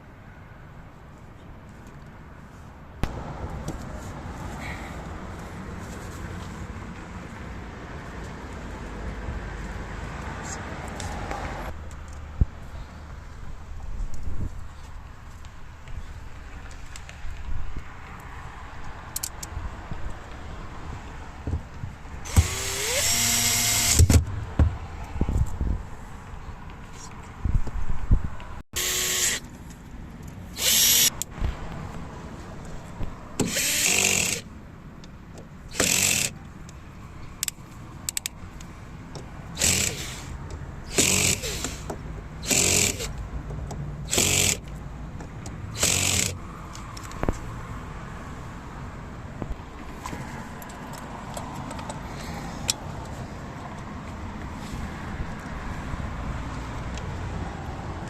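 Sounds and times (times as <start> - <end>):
power drill bursts: 22.3 - 24.1, 28.8 - 29.4, 30.6 - 31.1, 33.4 - 34.4, 35.7 - 36.3, 39.6 - 40.3, 40.9 - 41.8, 42.4 - 43.1, 44.1 - 44.6, 45.8 - 46.4.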